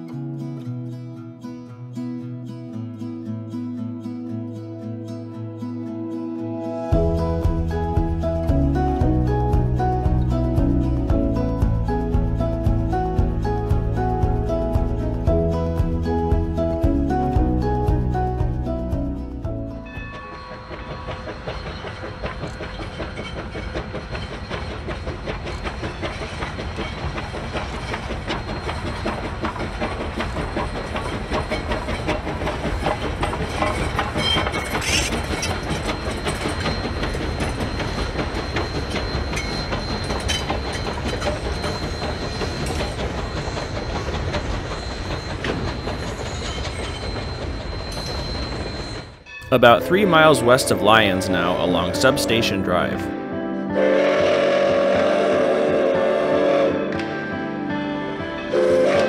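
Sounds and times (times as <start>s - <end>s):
train wheels clacking over rail joints: 19.8s - 49.3s.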